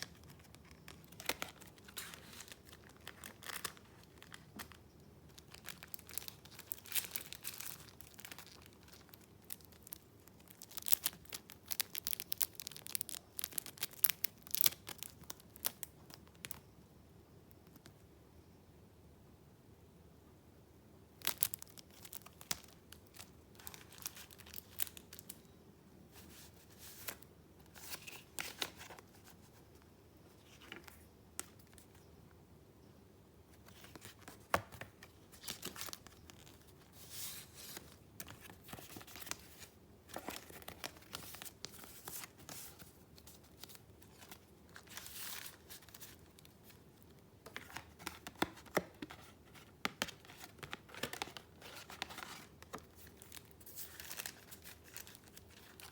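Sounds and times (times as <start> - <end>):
paper rustling and crinkling: 0.0 - 15.8, 26.2 - 29.7, 33.6 - 46.8, 47.4 - 55.9.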